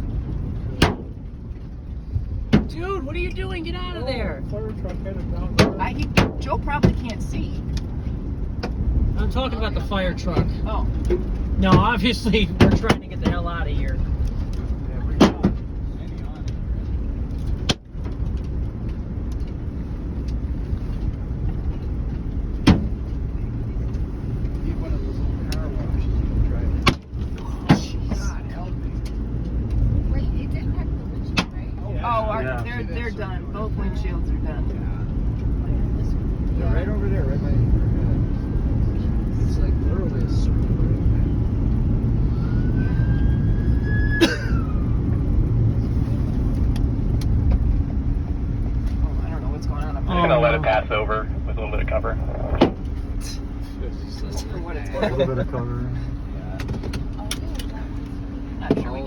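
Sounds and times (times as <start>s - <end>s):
car interior rumble: 0.0s - 59.0s
hailstone striking car: 0.8s - 1.2s, 22.6s - 23.0s
faint rising whistle: 42.3s - 45.0s.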